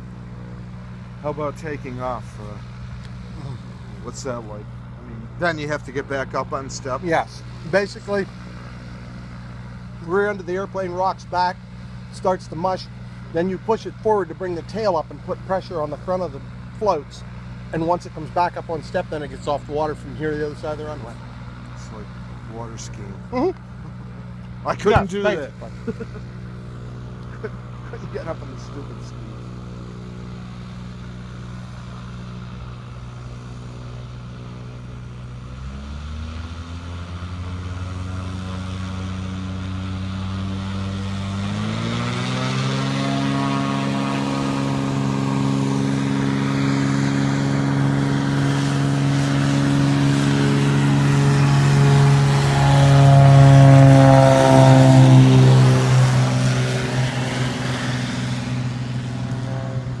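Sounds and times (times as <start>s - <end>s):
floatplane engine and propeller: 0.0s - 60.0s.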